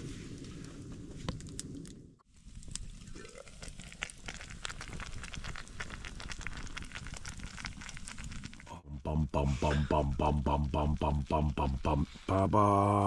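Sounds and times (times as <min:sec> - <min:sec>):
campfire crackling: 0:00.0 - 0:08.8.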